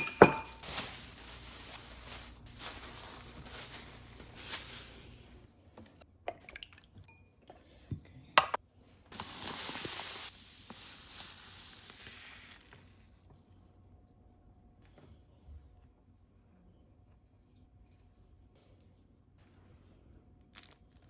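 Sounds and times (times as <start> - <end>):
glassware and dishes clinking: 0.0 - 0.7.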